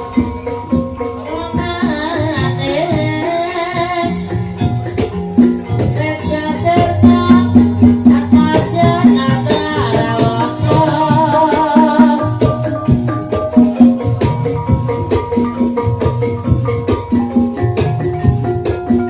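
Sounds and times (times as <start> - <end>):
drums playing rhythmic pattern: 0.0 - 19.0
wavering melodic line: 0.0 - 19.0.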